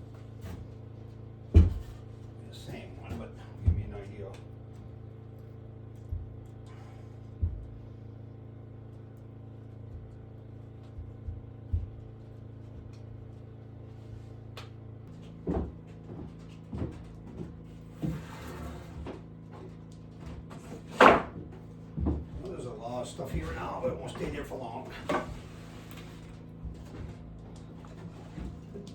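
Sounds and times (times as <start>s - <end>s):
steady low hum: 0.0s - 28.9s
objects knocking and thumping: 1.5s - 4.1s, 7.3s - 7.8s, 15.2s - 28.9s.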